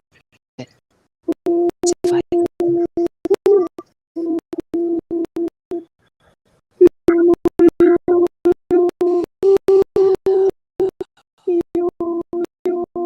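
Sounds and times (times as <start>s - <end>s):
stuttering steady tone: 1.3s - 5.9s.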